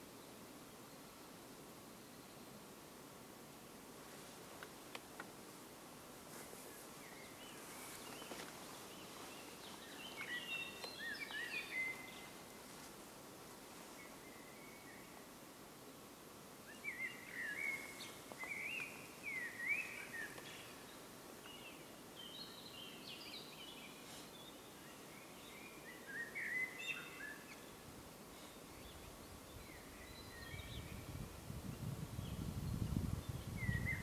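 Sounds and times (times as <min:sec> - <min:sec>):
faint outdoor hiss: 0:00.0 - 0:34.0
birdsong chirping: 0:06.8 - 0:12.4.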